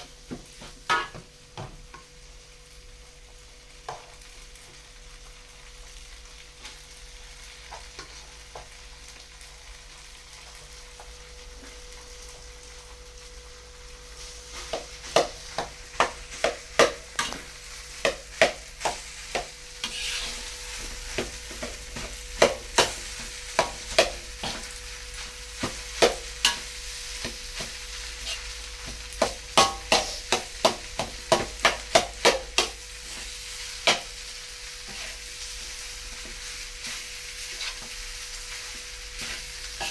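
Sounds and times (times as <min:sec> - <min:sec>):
rice sizzling in a pan: 0:00.0 - 0:39.9
spatula scraping a pan: 0:18.8 - 0:34.2, 0:34.8 - 0:39.9.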